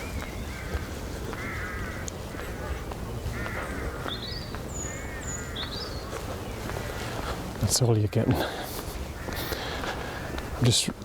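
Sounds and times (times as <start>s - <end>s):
crows cawing: 0.0s - 6.7s, 8.0s - 10.6s
small bird chirping: 4.1s - 6.7s.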